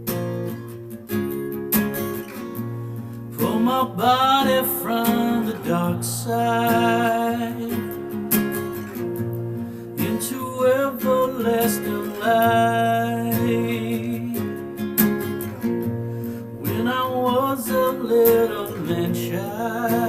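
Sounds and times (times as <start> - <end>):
strummed acoustic guitar: 0.0 - 20.0
man singing: 3.3 - 9.0, 10.0 - 14.8, 16.6 - 20.0.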